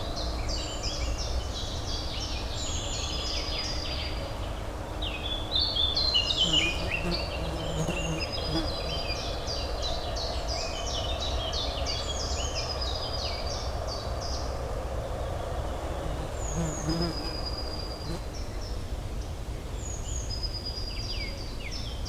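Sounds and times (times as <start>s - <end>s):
songbirds chirping: 6.1s - 9.2s, 15.4s - 18.5s.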